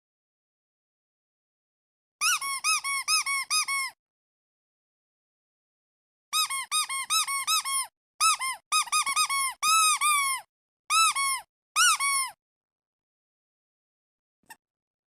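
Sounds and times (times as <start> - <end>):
squeaky duck toy squeaking: 2.2 - 4.0, 6.3 - 12.4.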